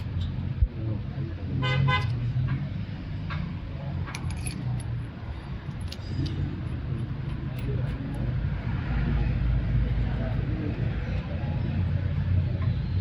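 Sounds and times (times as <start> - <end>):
small metal parts clinking: 4.0 - 6.8.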